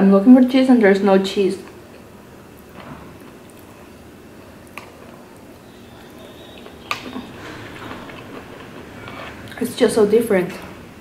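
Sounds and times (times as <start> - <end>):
rice cakes being chewed: 1.6 - 10.0.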